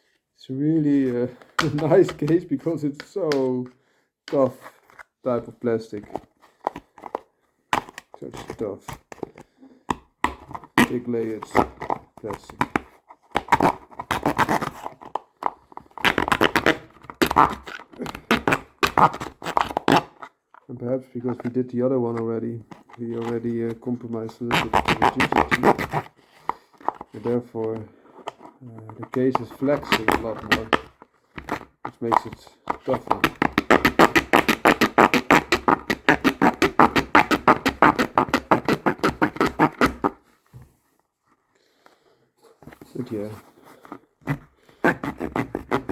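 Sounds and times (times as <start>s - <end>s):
hand tool cutting hard plastic: 1.5s - 2.4s, 7.8s - 20.3s, 22.7s - 40.2s, 43.0s - 45.9s.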